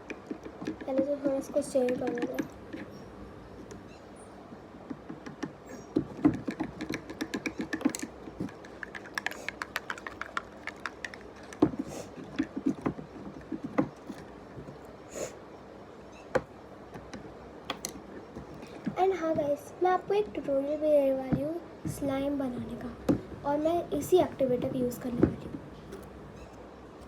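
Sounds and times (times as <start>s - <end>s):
utensil clicking against container: 6.2s - 12.8s.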